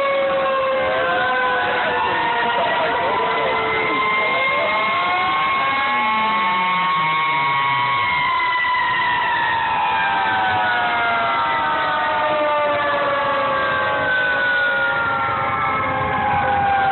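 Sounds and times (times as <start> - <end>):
fire truck sirens wailing: 0.0 - 16.9.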